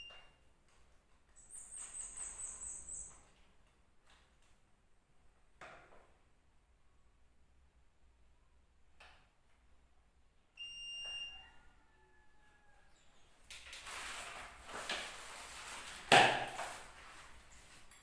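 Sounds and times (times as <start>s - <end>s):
rustling and clattering items: 13.4s - 18.0s.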